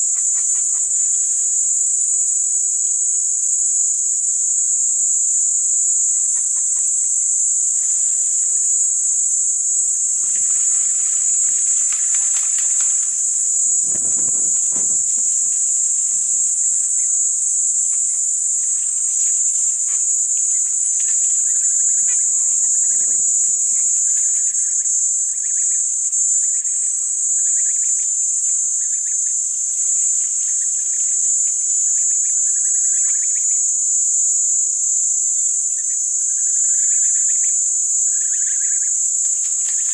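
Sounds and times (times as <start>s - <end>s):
insects chorus: 0.0s - 39.9s
low rough animal call: 9.8s - 18.2s.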